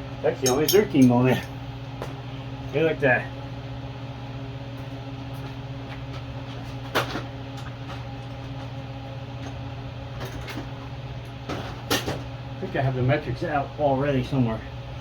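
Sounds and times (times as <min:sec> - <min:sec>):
metal hand tools clinking: 0:00.4 - 0:01.5.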